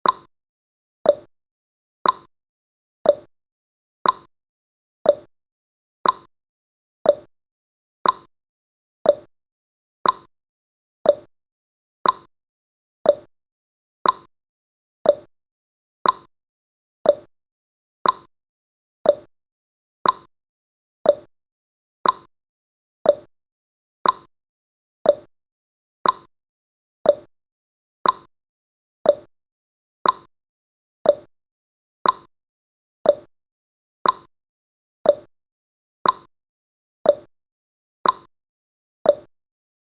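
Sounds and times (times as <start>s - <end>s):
clock ticking: 2.0s - 2.3s, 4.0s - 4.3s, 6.0s - 6.3s, 8.0s - 8.3s, 10.0s - 10.3s, 12.0s - 12.3s, 14.0s - 14.3s, 15.1s - 15.3s, 16.0s - 16.3s, 18.0s - 18.3s, 20.0s - 20.3s, 21.1s - 21.3s, 22.0s - 22.3s, 24.0s - 24.3s, 26.0s - 26.3s, 28.0s - 28.3s, 29.1s - 29.3s, 30.0s - 30.3s, 31.1s - 31.3s, 32.0s - 32.3s, 33.1s - 33.3s, 34.0s - 34.3s, 35.1s - 35.3s, 36.0s - 36.3s, 38.0s - 38.3s, 39.1s - 39.3s.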